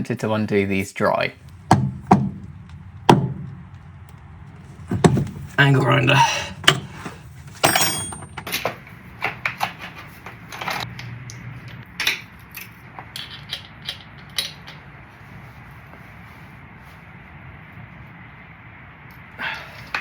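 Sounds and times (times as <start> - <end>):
metal tools clanking: 4.6 - 8.8.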